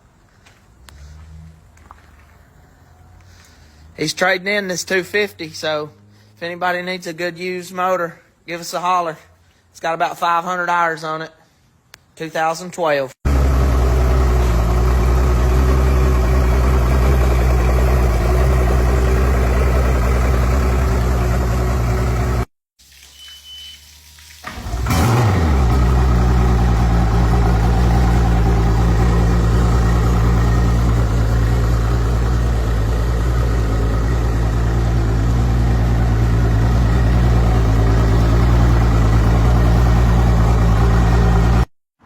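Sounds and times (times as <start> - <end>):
outboard engine starting and idling: 13.3 - 22.5, 24.3 - 41.7.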